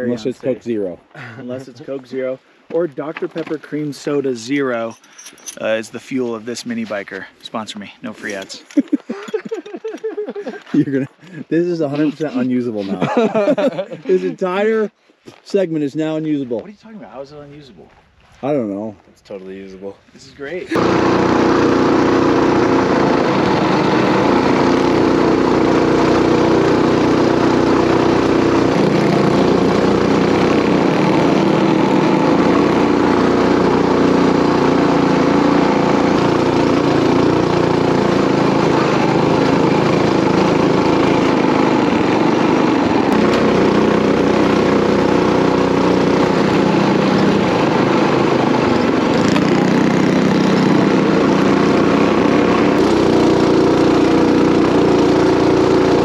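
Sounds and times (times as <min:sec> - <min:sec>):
mini bike engine running: 0:20.7 - 0:56.0.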